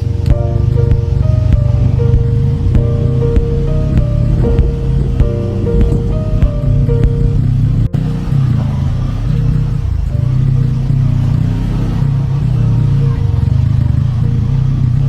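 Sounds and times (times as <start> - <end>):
background music: 0.0 - 11.5
motorcycle engine rumble: 0.0 - 15.0.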